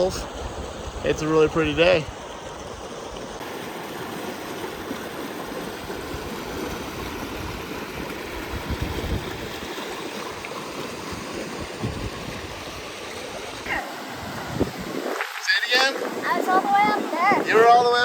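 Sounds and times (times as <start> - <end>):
waterfall pouring into pool: 2.8 - 14.2.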